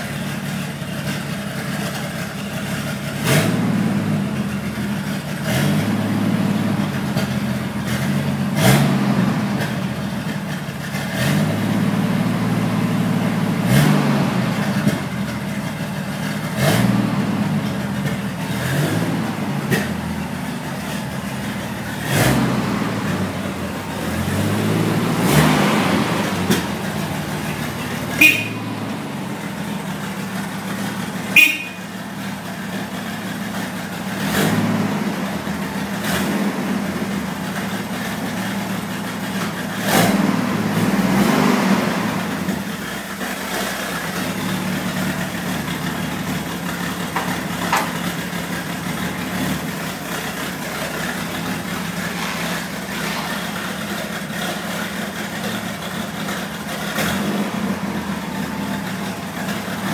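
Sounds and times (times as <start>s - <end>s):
car engine idling: 0.0s - 59.9s
short sharp sounds: 27.4s - 29.5s, 31.4s - 31.8s, 51.7s - 54.2s.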